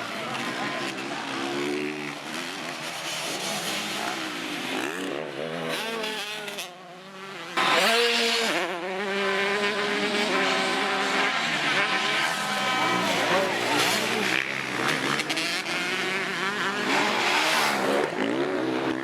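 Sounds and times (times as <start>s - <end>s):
loud motorbike engine: 0.0s - 19.0s
motocross engines revving: 0.0s - 19.0s.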